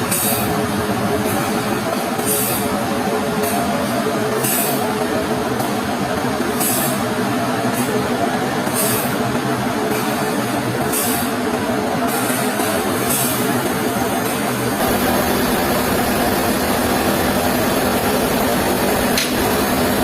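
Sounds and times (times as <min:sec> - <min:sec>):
sawmill machinery running: 0:12.8 - 0:20.0.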